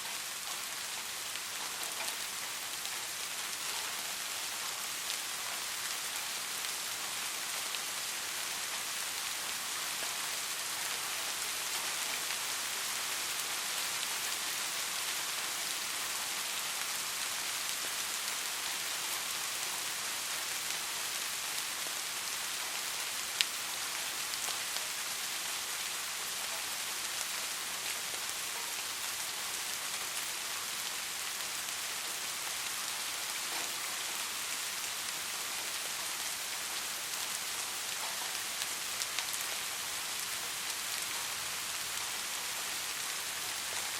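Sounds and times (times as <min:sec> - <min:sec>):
soft rain falling: 0:00.0 - 0:43.9.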